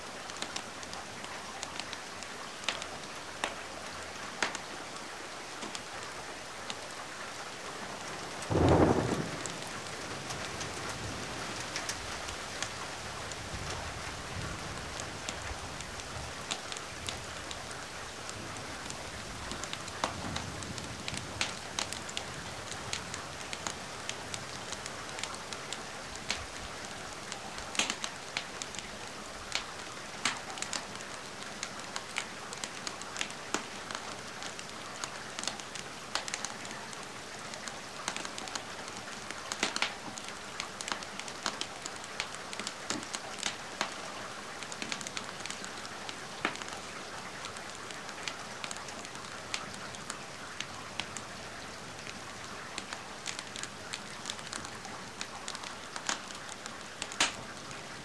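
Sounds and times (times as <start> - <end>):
rain falling: 0.0 - 58.0
wood fire crackling: 0.2 - 3.6, 4.2 - 6.9, 8.0 - 58.0.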